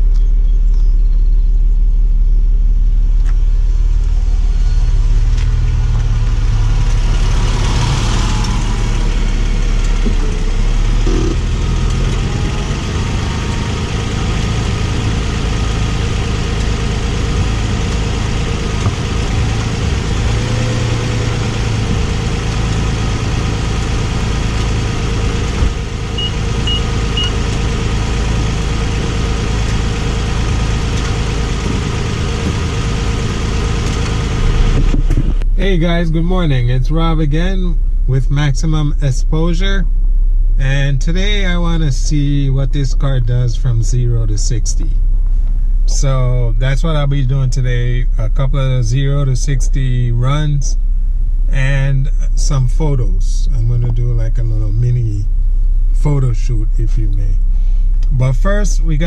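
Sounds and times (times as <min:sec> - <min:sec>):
car engine idling: 0:00.0 - 0:59.0
car pulling away over gravel: 0:03.2 - 0:36.5.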